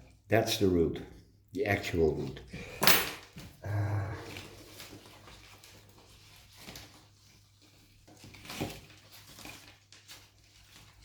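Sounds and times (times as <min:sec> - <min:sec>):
soft rustles of handling: 0:04.2 - 0:11.0.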